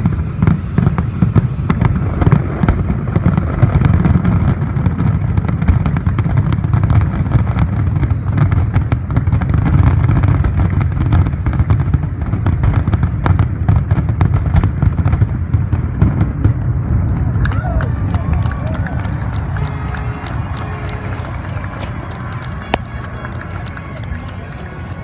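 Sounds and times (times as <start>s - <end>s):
fireworks cracking: 0.0s - 25.0s
deep rumble of bursts: 12.8s - 25.0s.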